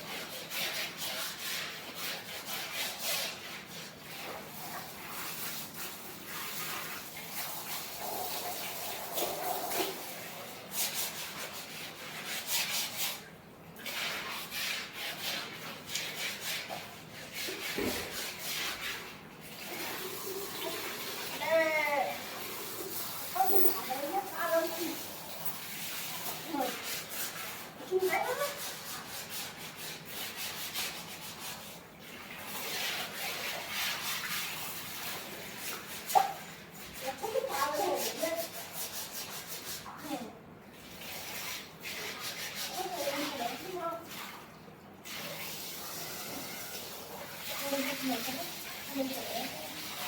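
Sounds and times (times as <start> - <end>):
milk squirting into a pail: 4.0 - 10.2.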